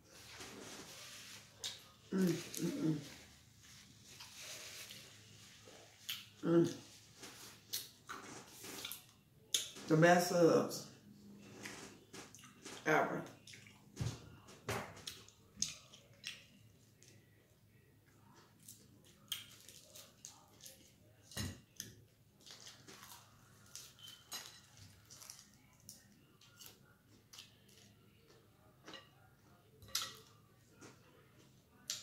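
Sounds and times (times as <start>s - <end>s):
chewing and mouth smacks: 7.6s - 9.8s, 11.6s - 13.9s, 15.0s - 17.2s, 18.2s - 29.0s.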